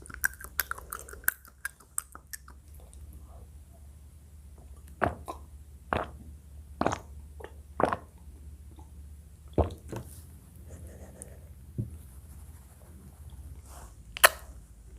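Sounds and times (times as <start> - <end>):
wet mouth pops eating: 14.2 - 14.5.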